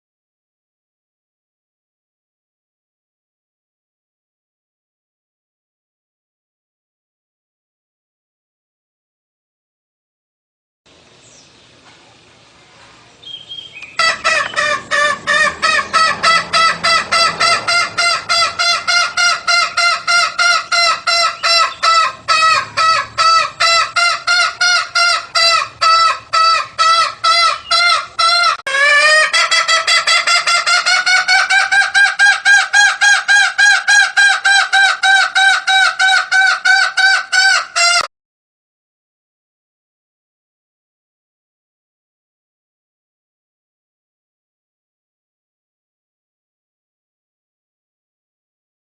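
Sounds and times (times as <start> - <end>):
junglefowl calling: 13.2 - 38.1.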